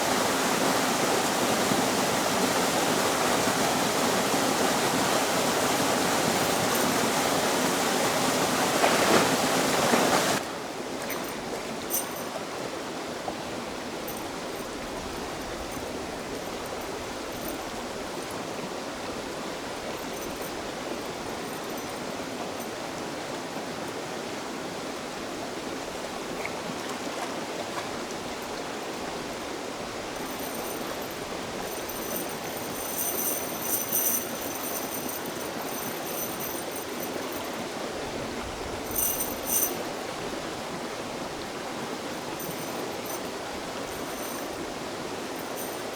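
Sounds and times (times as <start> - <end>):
rushing floodwater: 0.0 - 15.2
water flowing: 27.6 - 45.9.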